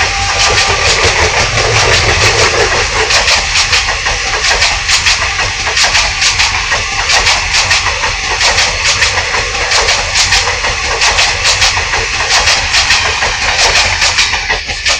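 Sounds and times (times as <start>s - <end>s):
heavy engine running: 0.0s - 14.9s.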